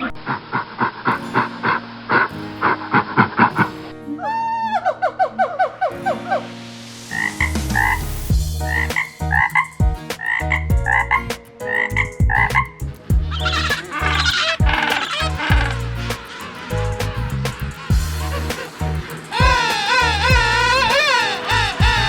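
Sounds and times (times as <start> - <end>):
low steady drone: 15.2 - 22.0
short animal calls: 18.5 - 22.0.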